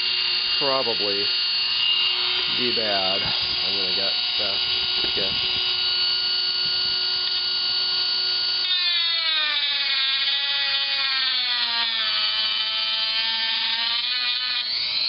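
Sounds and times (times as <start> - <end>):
rotary bit cutting plastic: 0.0 - 15.0
rotary tool high whine: 0.0 - 15.0.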